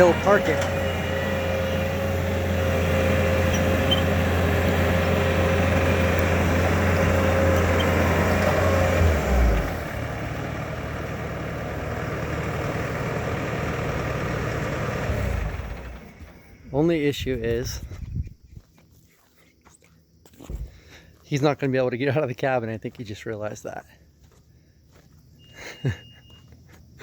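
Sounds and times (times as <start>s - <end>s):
diesel engine whining: 0.0s - 19.3s, 20.2s - 27.0s.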